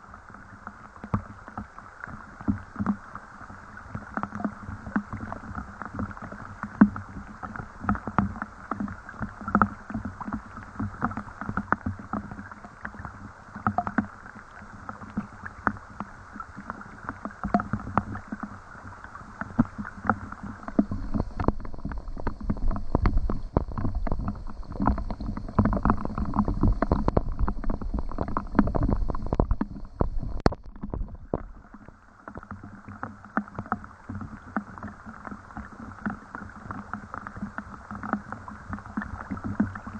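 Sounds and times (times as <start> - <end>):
rain drops tapping and dripping: 19.5 - 31.5.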